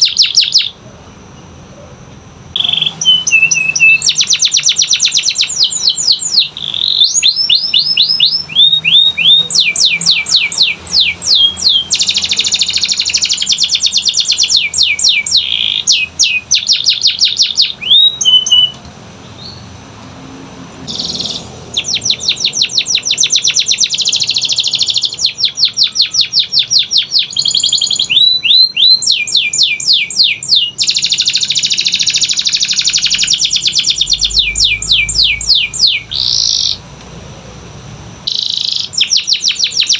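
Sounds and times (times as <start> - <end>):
canary singing: 0.0 - 36.9, 38.1 - 39.9.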